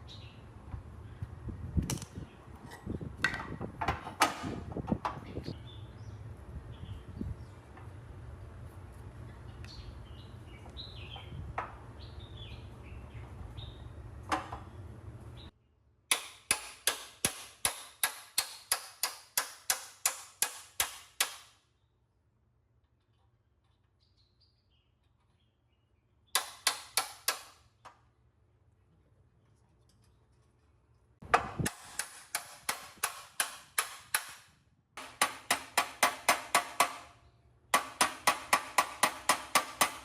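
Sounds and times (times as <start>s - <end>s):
birds chirping: 9.1s - 15.6s
hammer striking metal: 35.0s - 37.1s, 37.8s - 40.0s.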